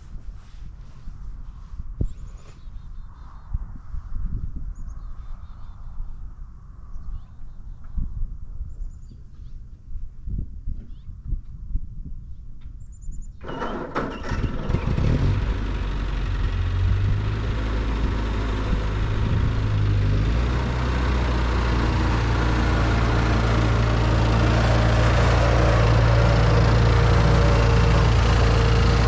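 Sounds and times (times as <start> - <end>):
tractor engine starting and running: 13.4 - 29.0.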